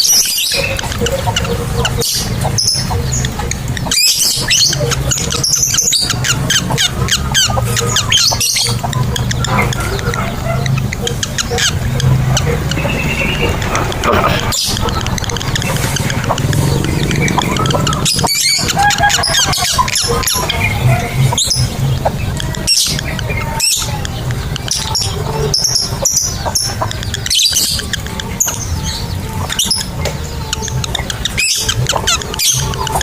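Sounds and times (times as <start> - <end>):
lovebirds chirping and screeching: 0.0 - 33.0
steady low hum: 0.6 - 26.5.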